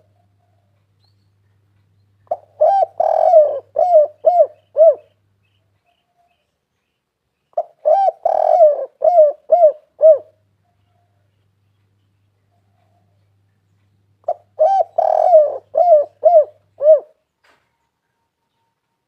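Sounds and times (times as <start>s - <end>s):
dove cooing: 2.2s - 5.2s, 7.6s - 11.2s, 14.2s - 17.2s.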